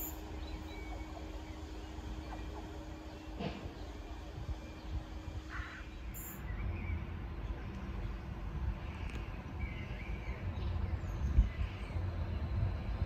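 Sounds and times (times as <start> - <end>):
birds chirping: 0.0 - 8.2
diesel train rumble: 0.0 - 13.0
train bump: 2.2 - 4.2.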